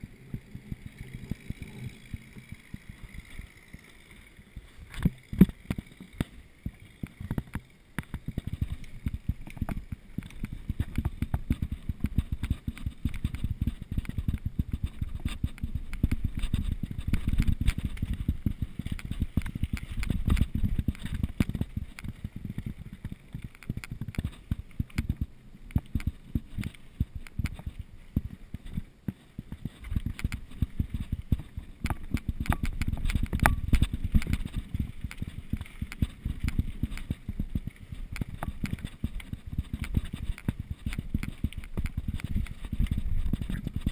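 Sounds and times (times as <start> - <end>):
bike rattling over rough ground: 0.0 - 43.9.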